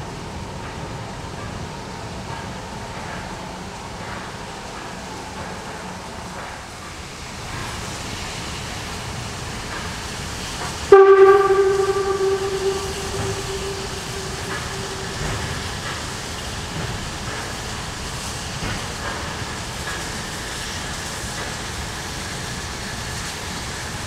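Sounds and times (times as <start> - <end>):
background noise: 10.9 - 16.0
steam locomotive whistle blast: 10.9 - 16.0.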